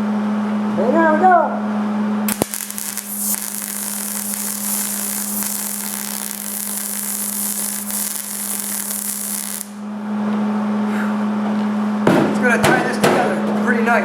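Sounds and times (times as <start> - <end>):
constant low hum: 0.0 - 14.0
arc welding crackling hiss: 2.3 - 9.8.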